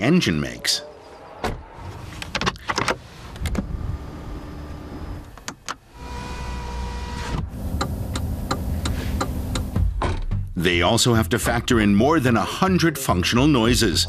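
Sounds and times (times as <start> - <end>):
small electric motor whirring: 5.9 - 8.7.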